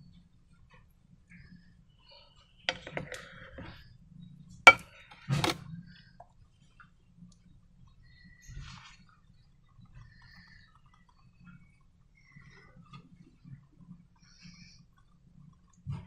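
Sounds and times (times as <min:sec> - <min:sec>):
containers and tools tapping: 0:02.7 - 0:03.7, 0:04.7 - 0:05.6.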